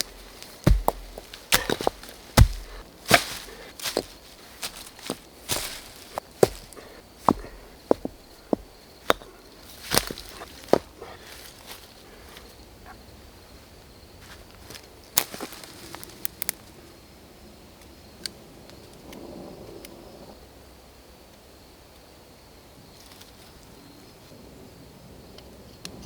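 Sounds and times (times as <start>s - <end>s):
dry twigs snapping: 0.0s - 7.6s, 9.1s - 11.4s, 15.2s - 16.6s
rustling: 0.0s - 11.9s
footsteps on forest floor: 0.0s - 12.5s, 14.2s - 16.2s.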